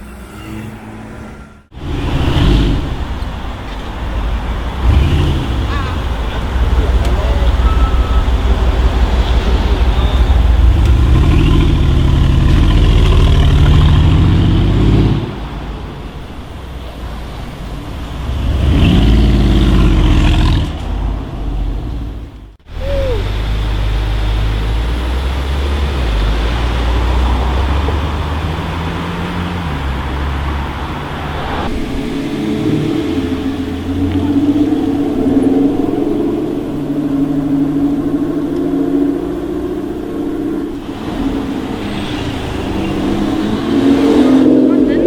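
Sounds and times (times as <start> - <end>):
road noise: 0.0 - 45.0
car engine accelerating: 1.6 - 45.0
car engine running: 1.7 - 16.5.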